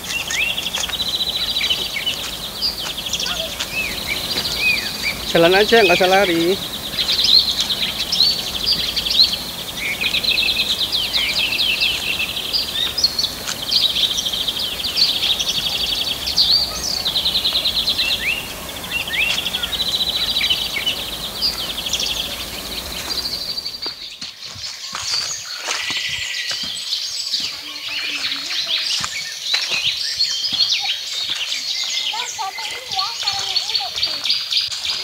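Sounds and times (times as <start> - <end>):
low background rumble: 0.0 - 23.9
birds chirping and trilling: 0.0 - 35.0.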